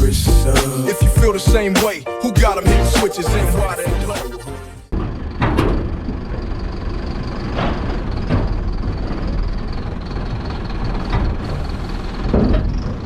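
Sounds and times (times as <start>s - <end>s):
diesel truck engine running: 2.7s - 13.0s.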